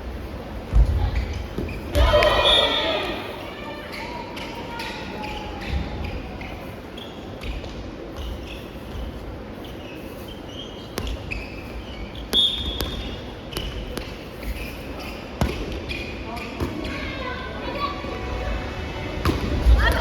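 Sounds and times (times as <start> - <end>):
shoes squeaking on court: 0.9 - 2.0, 3.9 - 17.2.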